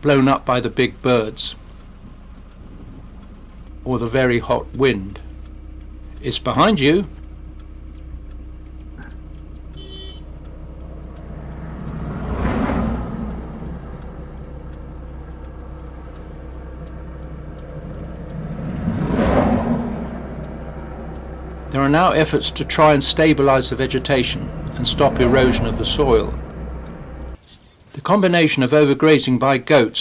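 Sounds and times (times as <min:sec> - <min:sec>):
steady low hum: 0:00.0 - 0:27.4
vehicles driving past: 0:00.0 - 0:30.0.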